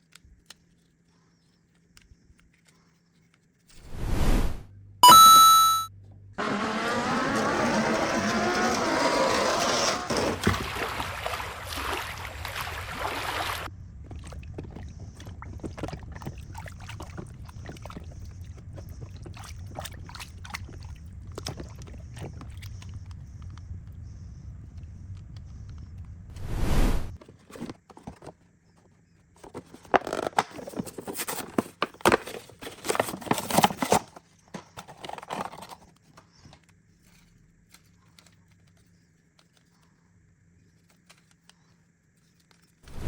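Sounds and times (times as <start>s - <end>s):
short bright chime: 5.0s - 5.9s
faint low hum: 10.2s - 29.8s
water being poured: 10.3s - 18.2s
plastic toy trucks clicking: 29.4s - 39.8s.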